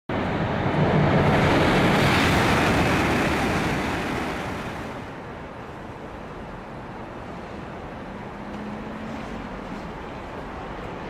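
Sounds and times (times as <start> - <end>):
train rushing past: 0.1 - 6.1.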